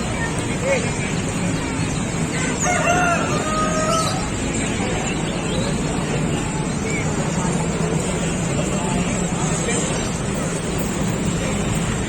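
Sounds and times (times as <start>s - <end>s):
rooster crowing: 2.6s - 4.2s.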